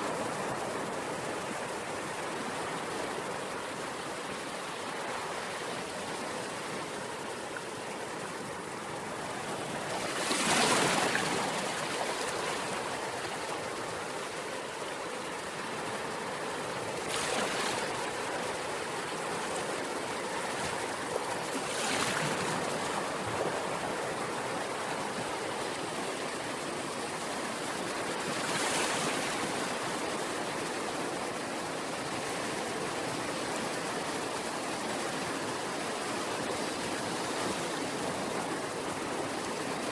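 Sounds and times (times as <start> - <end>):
waves breaking: 7.6 - 14.0, 15.4 - 31.3
surf rushing: 9.1 - 14.0, 16.9 - 25.1.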